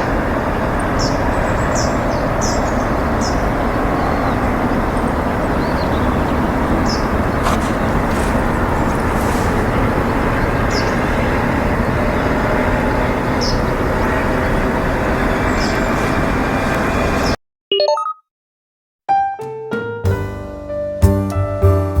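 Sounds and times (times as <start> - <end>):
outdoor background rumble: 0.0 - 17.4.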